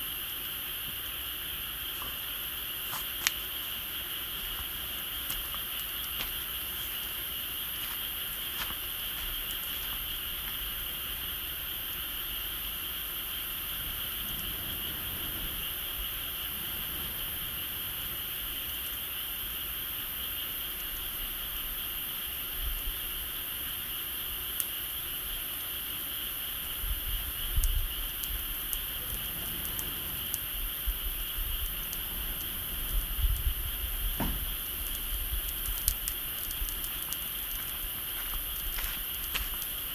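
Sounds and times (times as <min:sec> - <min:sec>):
high-pitched insect chorus: 0:00.0 - 0:39.9
low thumps: 0:30.9 - 0:39.6.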